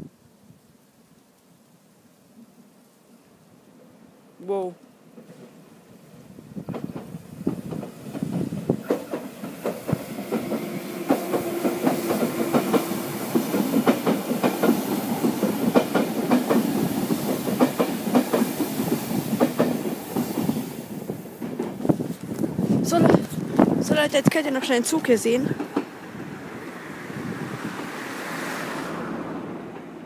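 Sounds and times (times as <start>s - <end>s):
passenger train passing: 5.1s - 30.0s
train wheels clattering over rail joints: 6.6s - 22.1s, 25.5s - 26.3s.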